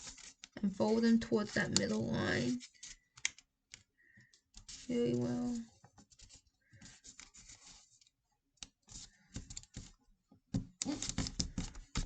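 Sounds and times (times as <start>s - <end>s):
paper crinkling and rustling: 0.0s - 3.4s, 4.3s - 10.0s.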